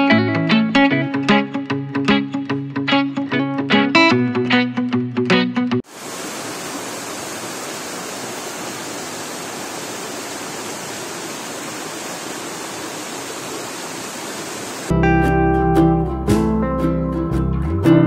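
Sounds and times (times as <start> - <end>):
acoustic guitar music: 0.0 - 5.8, 14.9 - 18.0
waterfall rushing over rocks: 5.8 - 14.9.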